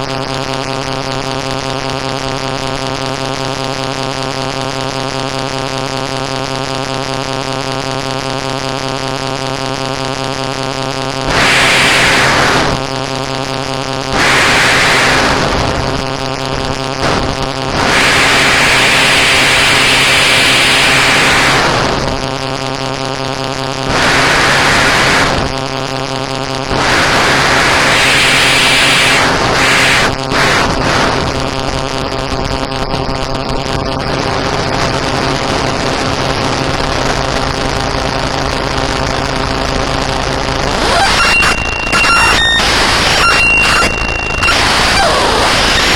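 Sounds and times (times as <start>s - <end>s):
electrical buzzing hum: 0.0s - 45.9s
static hiss bursts: 11.3s - 12.8s, 14.1s - 16.0s, 16.9s - 21.9s, 23.9s - 25.5s, 26.7s - 31.2s, 39.6s - 45.9s.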